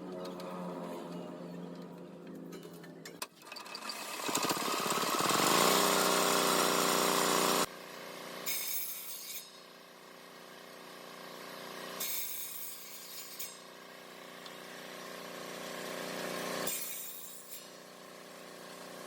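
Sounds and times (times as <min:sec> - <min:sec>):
quieter working noise: 0:00.0 - 0:19.0
power tool whining on wood: 0:03.4 - 0:07.7.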